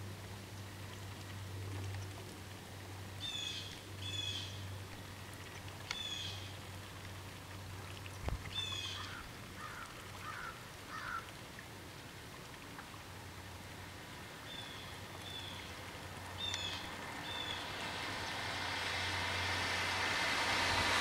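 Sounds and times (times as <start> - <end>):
bird calls: 3.2 - 4.6, 5.9 - 6.5, 8.5 - 11.2, 16.4 - 17.6.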